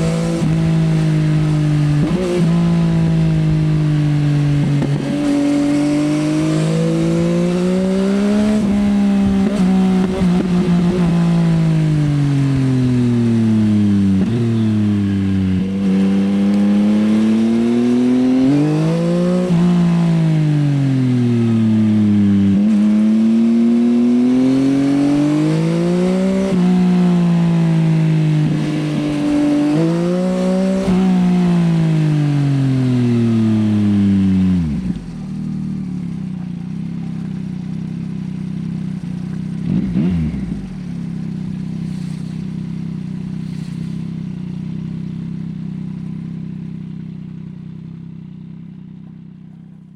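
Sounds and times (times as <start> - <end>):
motorcycle engine revving: 0.0 - 49.9
exhaust crackles: 26.5 - 45.2.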